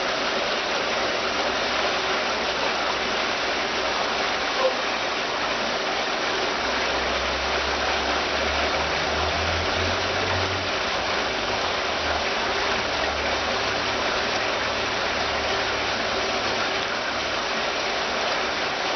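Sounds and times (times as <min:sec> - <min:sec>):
fountain water splashing: 0:00.0 - 0:18.9
low engine-like hum: 0:06.3 - 0:17.3.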